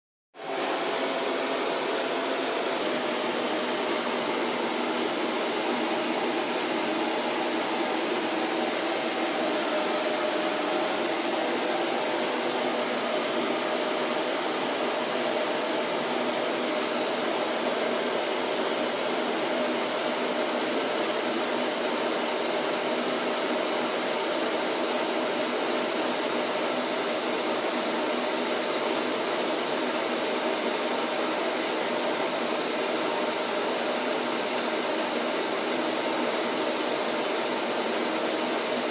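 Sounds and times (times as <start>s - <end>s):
vacuum cleaner running: 0.4s - 38.9s.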